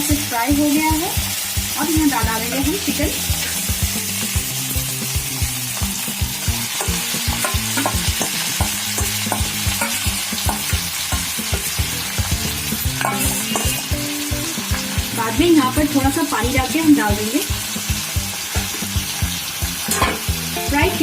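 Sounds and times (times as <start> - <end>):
chicken sizzling in oil: 0.0 - 21.0
spatula knocking on pan: 6.2 - 15.0, 17.7 - 19.2.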